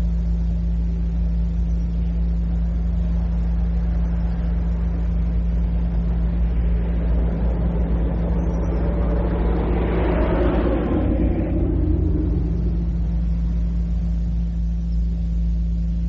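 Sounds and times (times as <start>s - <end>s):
vehicle engine rumbling: 0.0s - 16.0s
rushing noise: 3.1s - 14.7s.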